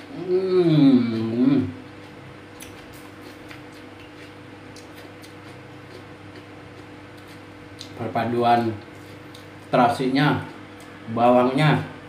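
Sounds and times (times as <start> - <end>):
steady low hum: 0.0 - 12.0
man chewing food: 0.4 - 9.8, 10.4 - 11.0.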